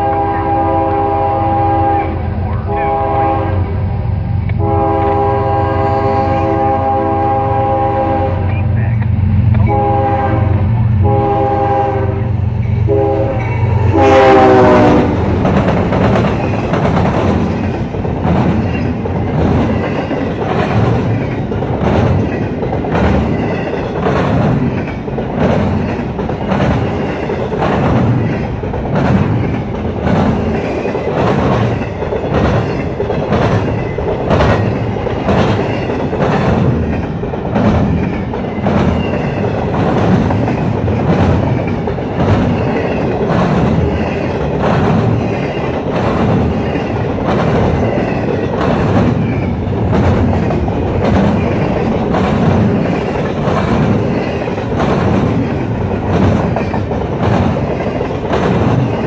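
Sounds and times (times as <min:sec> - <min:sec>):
locomotive horn blasts: 0:00.0 - 0:03.8, 0:04.6 - 0:08.7, 0:09.6 - 0:15.4
train wheel clacks: 0:12.6 - 0:59.0.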